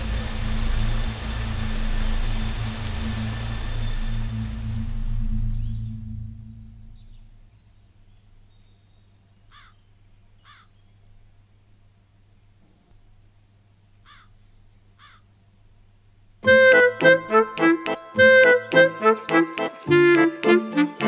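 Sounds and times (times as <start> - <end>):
low steady hum: 0.0 - 9.3
faint bird calls: 9.4 - 10.9, 14.0 - 15.4.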